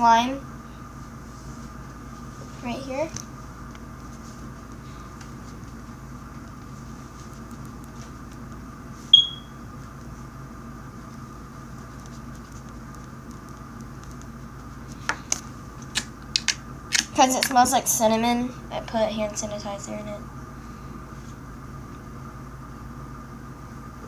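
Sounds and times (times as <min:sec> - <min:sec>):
steady hum: 0:00.0 - 0:24.0
high-pitched electronic beep: 0:09.2 - 0:09.5.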